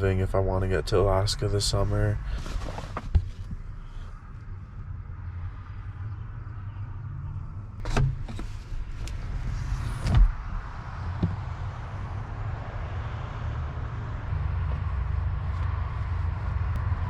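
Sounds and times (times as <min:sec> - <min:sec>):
door clicks: 0:07.8 - 0:08.5
door shutting thump: 0:07.8 - 0:08.5, 0:09.9 - 0:10.4.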